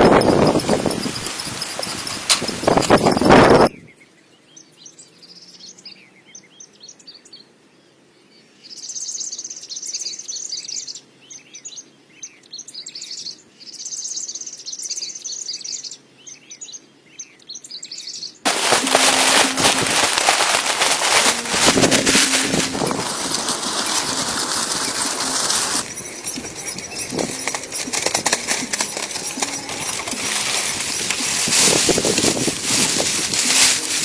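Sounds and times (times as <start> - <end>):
small birds chirping and trilling: 0.0 - 18.4, 22.9 - 34.0
loud harsh steady noise: 18.5 - 34.0.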